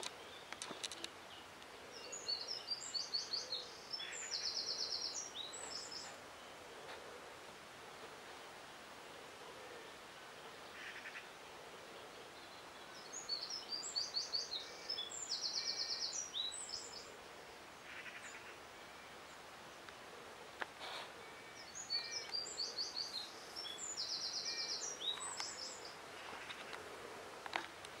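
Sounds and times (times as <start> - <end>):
songbird singing with trill: 0.0 - 6.9, 12.0 - 20.0, 21.2 - 26.0
faint outdoor hiss: 0.0 - 28.0.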